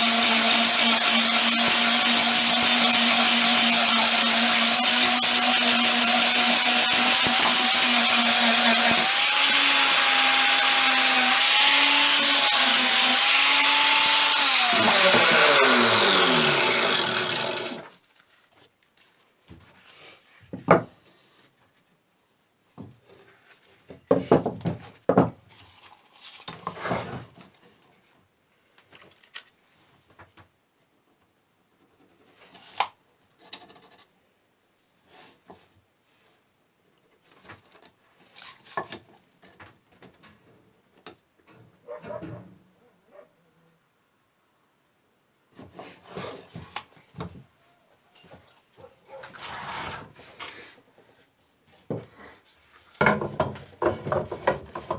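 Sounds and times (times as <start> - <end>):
power tool motor whining: 0.0 - 18.0
power tool winding down: 0.0 - 18.0
knocks and scraping of parts: 22.8 - 28.1, 52.8 - 54.9.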